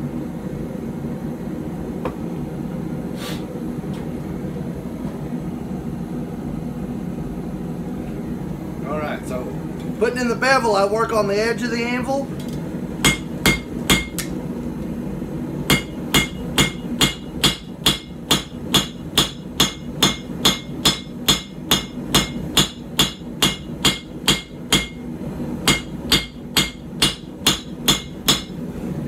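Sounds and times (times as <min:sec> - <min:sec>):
hammer striking blade on anvil: 0:13.0 - 0:14.3, 0:15.7 - 0:25.0, 0:25.7 - 0:28.6.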